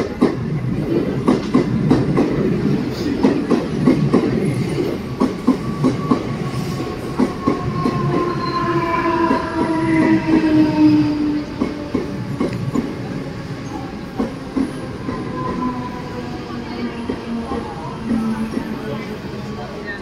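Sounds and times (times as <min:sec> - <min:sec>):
train wheels clacking over rail joints: 0:00.0 - 0:08.3
train whine: 0:00.0 - 0:20.0.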